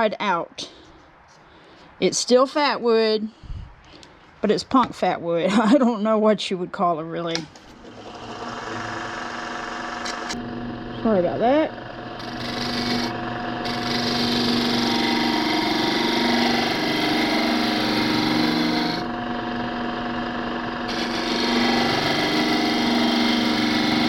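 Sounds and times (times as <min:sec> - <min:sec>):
tool scraping spinning wood: 0:07.6 - 0:10.5, 0:11.3 - 0:24.0
wood lathe motor hum: 0:07.7 - 0:24.0.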